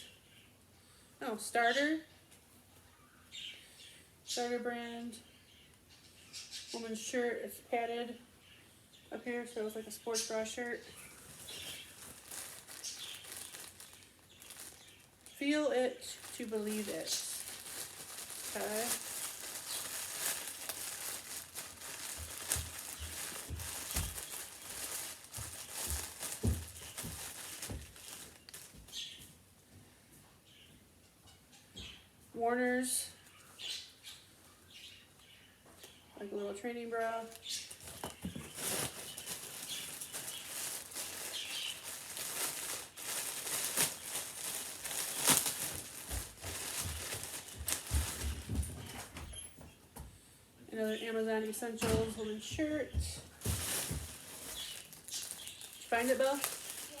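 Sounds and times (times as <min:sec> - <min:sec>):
clothes being handled: 0:10.9 - 0:15.5, 0:16.1 - 0:29.2, 0:37.3 - 0:49.7, 0:51.8 - 0:57.0
packaging crinkling: 0:10.9 - 0:29.2, 0:37.2 - 0:49.1, 0:53.3 - 0:57.0
fabric rustling: 0:11.0 - 0:15.4, 0:16.1 - 0:29.2, 0:37.6 - 0:49.1, 0:53.3 - 0:57.0.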